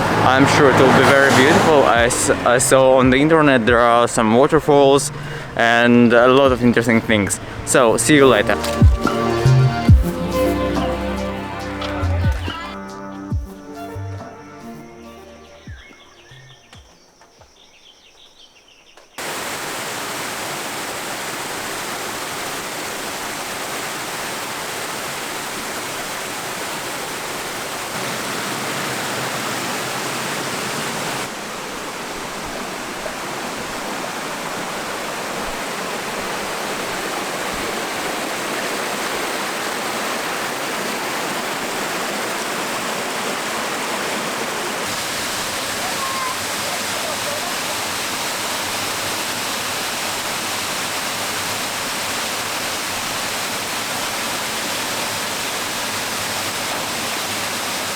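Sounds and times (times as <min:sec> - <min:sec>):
waterfall rushing: 0:00.0 - 0:12.8, 0:19.2 - 0:57.9.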